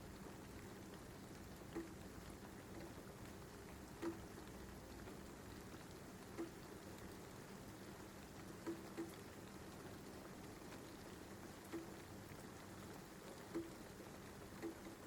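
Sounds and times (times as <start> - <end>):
faint rain: 0.0 - 15.0
single drip or tap: 4.0 - 4.2.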